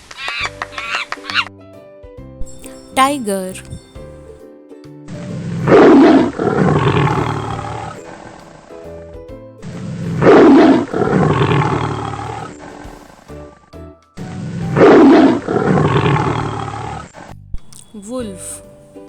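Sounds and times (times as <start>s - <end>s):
background music: 2.5s - 4.3s, 17.8s - 19.0s.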